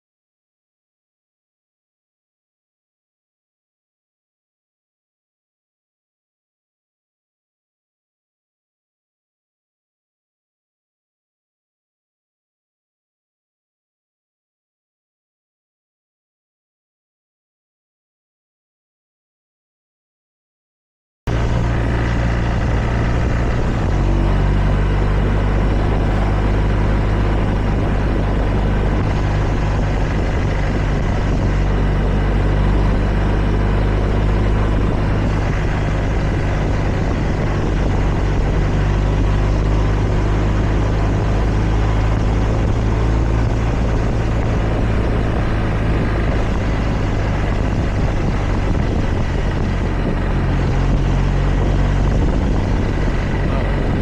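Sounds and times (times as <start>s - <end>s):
broad rushing noise: 21.3s - 54.0s
motorcycle engine running: 21.3s - 54.0s.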